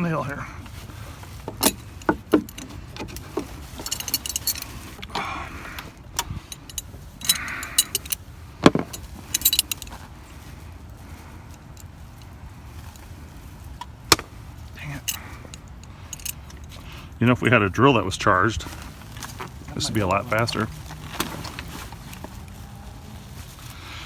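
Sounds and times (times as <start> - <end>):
metal hardware clicking and jingling: 1.4 - 5.1, 5.8 - 10.0, 13.8 - 17.0.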